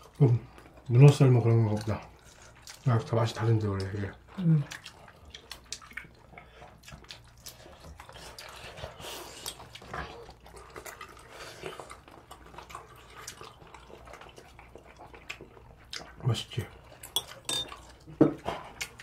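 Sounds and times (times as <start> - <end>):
people chewing: 0.0 - 19.0
cutlery clicking against bowls: 17.1 - 17.8.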